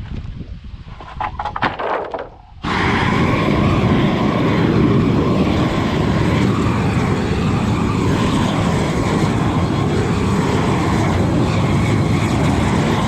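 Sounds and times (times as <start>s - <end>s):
torch flame roaring: 2.6s - 13.0s.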